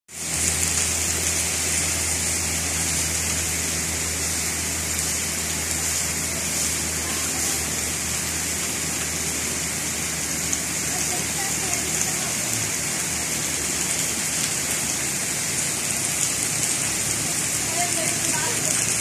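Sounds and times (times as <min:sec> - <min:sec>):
heavy rain on foliage: 0:00.1 - 0:19.0.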